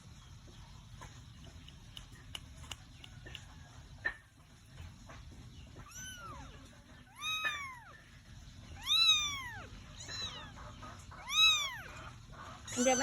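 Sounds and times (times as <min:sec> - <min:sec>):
kitten meowing: 0:05.8 - 0:08.0, 0:08.8 - 0:10.6, 0:11.2 - 0:13.0.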